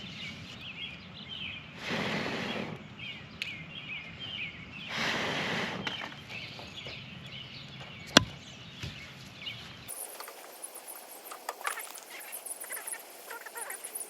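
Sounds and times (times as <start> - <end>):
small birds chirping: 0.0 - 14.0
rushing noise: 9.9 - 14.0.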